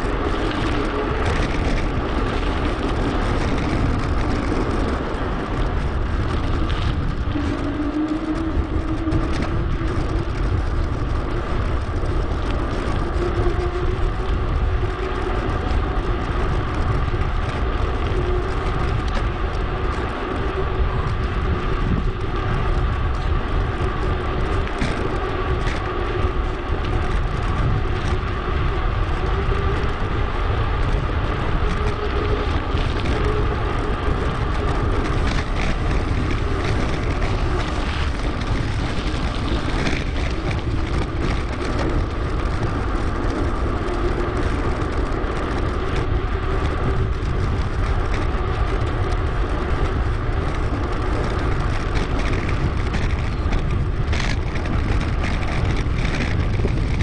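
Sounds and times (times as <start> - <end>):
bike tyre rolling noise: 0.0 - 57.0
small rattles: 0.0 - 57.0
wind rush on microphone: 0.0 - 57.0.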